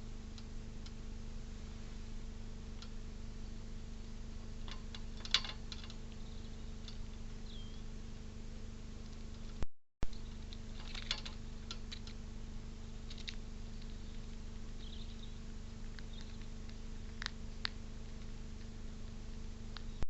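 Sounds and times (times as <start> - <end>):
low electrical hum: 0.0 - 20.0
light clicks and scratches: 4.6 - 6.2, 9.0 - 12.2, 13.0 - 20.0.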